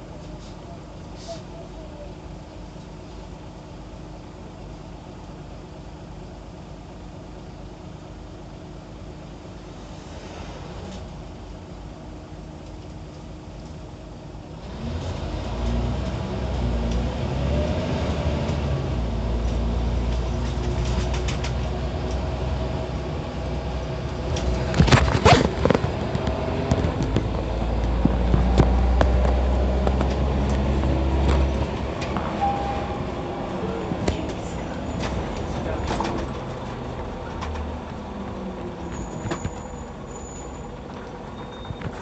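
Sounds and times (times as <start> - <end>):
bus diesel engine pulling: 0.0 - 42.0
heavy low rumble: 18.7 - 41.7
rattling and clattering: 20.4 - 21.7, 24.2 - 32.4.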